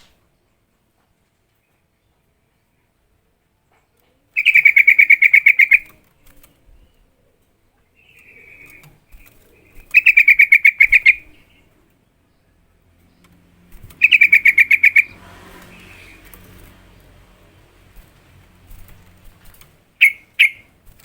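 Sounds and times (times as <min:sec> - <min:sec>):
bird giving rapid chattering calls: 0:04.4 - 0:06.0, 0:08.1 - 0:11.5, 0:13.8 - 0:16.9, 0:17.8 - 0:20.8.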